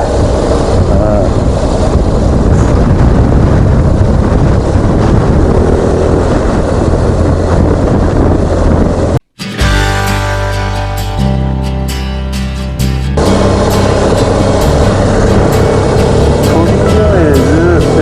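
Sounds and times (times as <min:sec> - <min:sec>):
heavy wind rush: 0:00.0 - 0:09.2, 0:12.6 - 0:18.0
music: 0:09.4 - 0:18.0
motorcycle engine running: 0:13.1 - 0:18.0.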